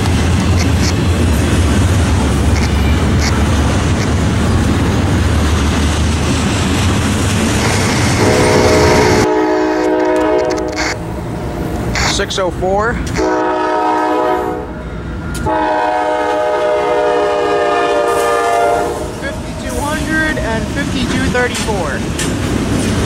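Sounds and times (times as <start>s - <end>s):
freight train wheels clattering: 0.0s - 10.8s, 18.1s - 23.0s
diesel locomotive horn: 7.7s - 11.1s, 13.1s - 20.0s.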